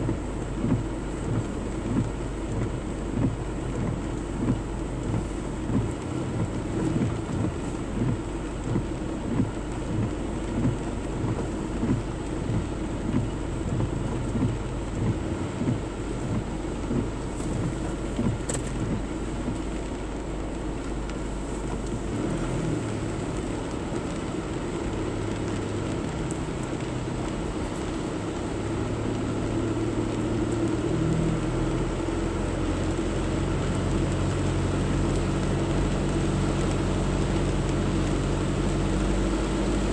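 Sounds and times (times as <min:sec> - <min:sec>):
low engine hum: 0:00.0 - 0:39.9
rain and water wash: 0:00.0 - 0:39.9.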